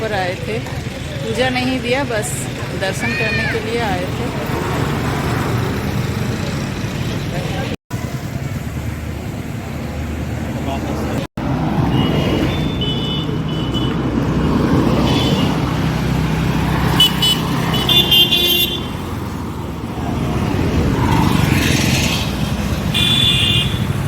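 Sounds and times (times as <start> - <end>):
road traffic rumble: 0.0 - 24.0
vehicle horns honking: 11.8 - 14.2, 15.0 - 15.7, 16.9 - 19.1, 22.8 - 24.0.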